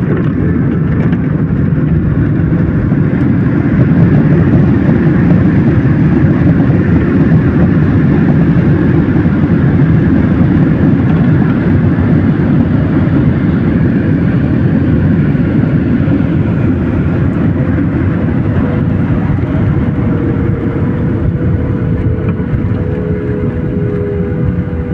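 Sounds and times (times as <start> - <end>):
airplane landing rumble: 0.0 - 24.9
faint whine: 0.0 - 24.9.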